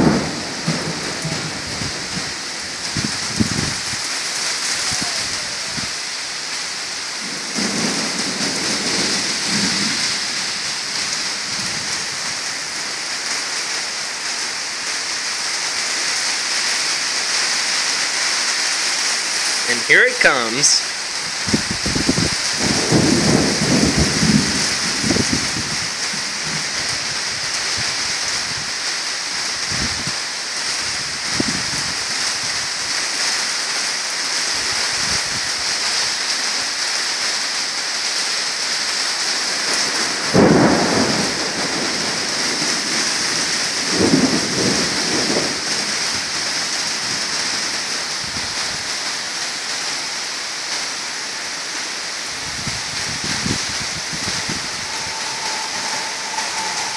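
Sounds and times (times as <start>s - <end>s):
thunder clap: 0.0s - 4.0s, 7.2s - 12.4s, 19.7s - 28.8s, 39.4s - 47.3s, 52.6s - 56.9s
thunder rumbling: 0.0s - 4.0s, 7.1s - 12.7s, 21.2s - 28.8s, 39.3s - 47.6s, 52.5s - 56.9s
heavy rain: 0.0s - 56.9s.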